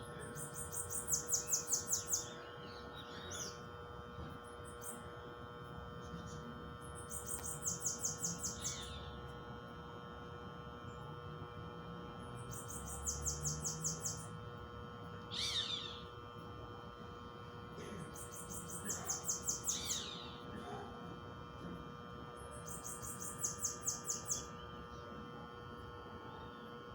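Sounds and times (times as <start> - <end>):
faint steady tones humming: 0.0 - 26.9
lower falling bird calls: 15.3 - 16.0.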